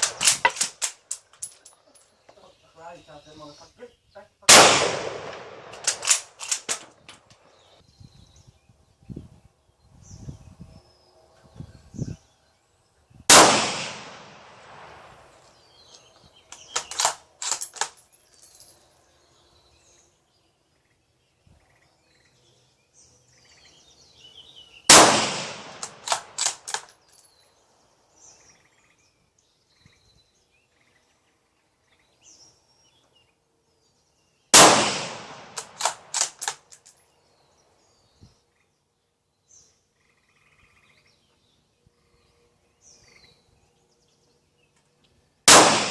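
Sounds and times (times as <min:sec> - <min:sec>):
rifle shots: 0:00.0 - 0:01.0, 0:04.5 - 0:07.1, 0:13.3 - 0:15.2, 0:24.9 - 0:26.9, 0:34.5 - 0:36.6, 0:45.5 - 0:45.9
rifle bolt metallic clicks: 0:00.0 - 0:01.8, 0:05.3 - 0:07.4, 0:15.9 - 0:18.1, 0:25.7 - 0:27.0, 0:35.5 - 0:37.0.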